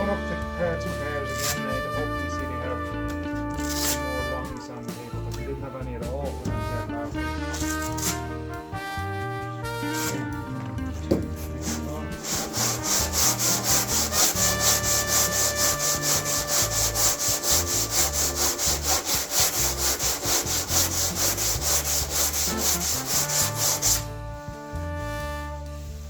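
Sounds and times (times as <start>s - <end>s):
sanding block rasping: 1.0s - 1.8s, 3.6s - 4.2s, 7.5s - 8.3s, 9.8s - 10.3s, 11.3s - 24.1s.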